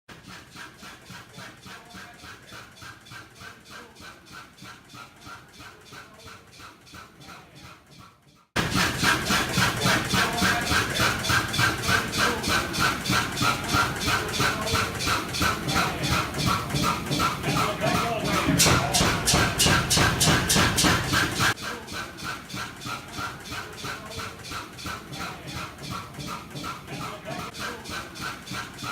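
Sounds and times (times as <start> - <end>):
oil field engine running: 8.6 - 28.9.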